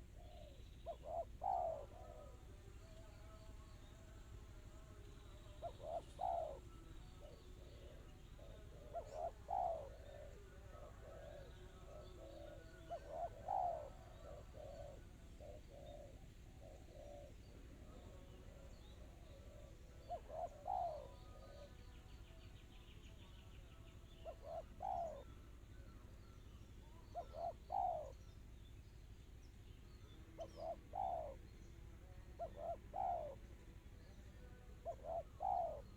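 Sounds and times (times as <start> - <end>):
dove cooing: 0.0 - 28.4, 29.6 - 35.9.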